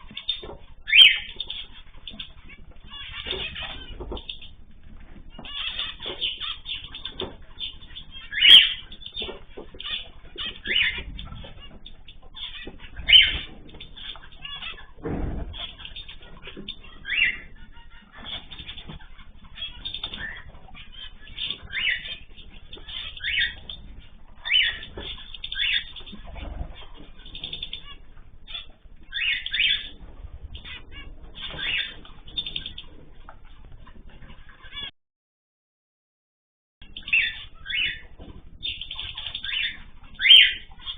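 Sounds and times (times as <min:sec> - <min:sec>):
birds chirping and calling: 0:00.0 - 0:34.9, 0:36.8 - 0:40.9
wings fluttering: 0:00.0 - 0:34.9.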